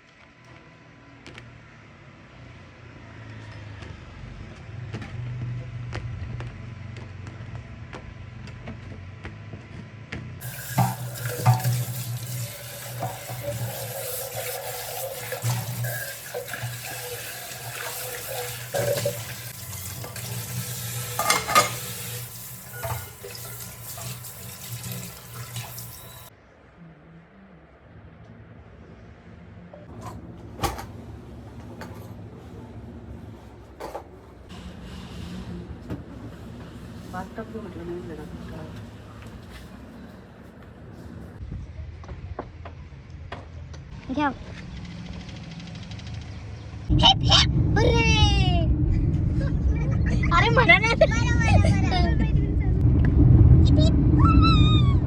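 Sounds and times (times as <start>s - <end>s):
dishes clinking: 10.4s - 24.3s
tap water running into sink: 10.4s - 26.3s
low hum: 44.5s - 55.0s.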